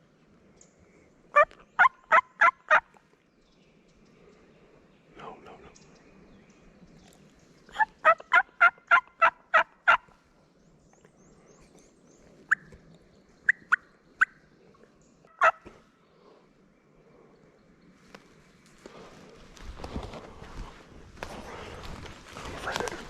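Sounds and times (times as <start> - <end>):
turkey yelping: 1.4 - 2.9, 7.7 - 10.1, 15.4 - 15.7
turkey clucks: 1.4 - 3.0, 7.7 - 10.1, 13.5 - 14.4, 15.3 - 15.8.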